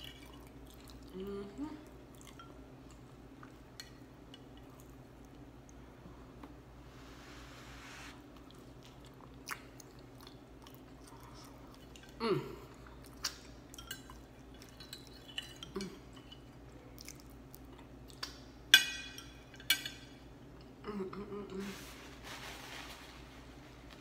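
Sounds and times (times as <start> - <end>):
person chewing: 8.2 - 15.1, 16.1 - 18.4.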